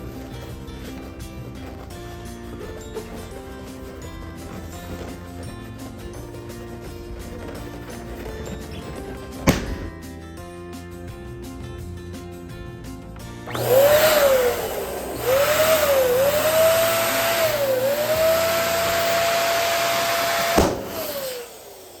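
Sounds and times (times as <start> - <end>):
balloon cracking: 0.0 - 10.0, 20.0 - 21.5
electric balloon pump: 0.0 - 10.0, 13.3 - 22.0
quiet background music: 0.0 - 21.0.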